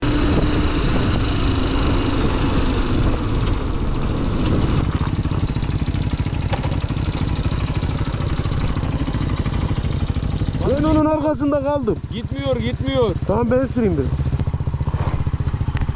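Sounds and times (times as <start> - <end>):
motorcycle engine running: 0.0 - 15.9.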